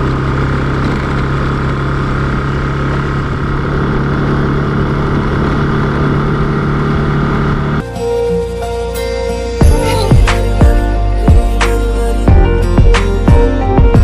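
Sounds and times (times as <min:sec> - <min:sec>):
rush of noise: 0:00.0 - 0:08.4
motorcycle engine humming: 0:00.0 - 0:14.0.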